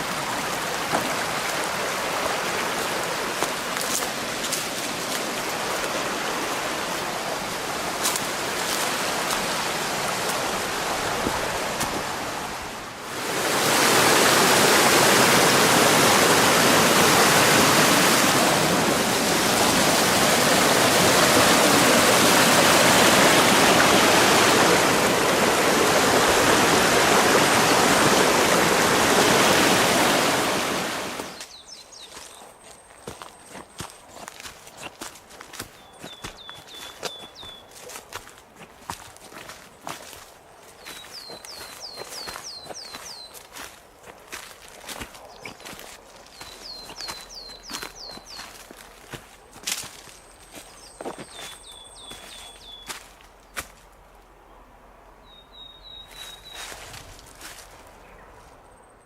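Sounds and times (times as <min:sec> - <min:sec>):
rushing mountain stream: 0:00.0 - 0:32.3, 0:33.0 - 0:53.7.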